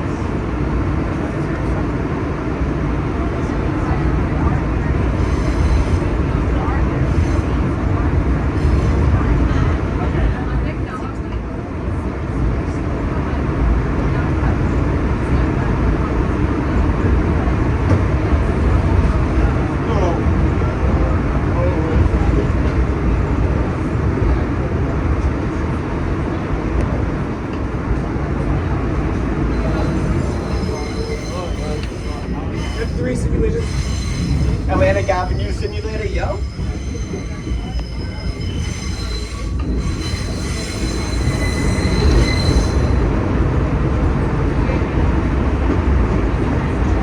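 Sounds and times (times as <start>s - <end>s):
subway train wheels rumbling: 0.0s - 47.0s
train wheels squealing on rails: 5.2s - 9.8s, 29.5s - 43.2s.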